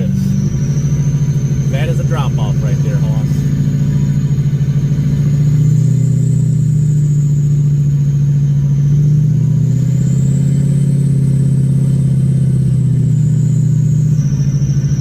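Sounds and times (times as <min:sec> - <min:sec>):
diesel truck engine droning: 0:00.0 - 0:15.0.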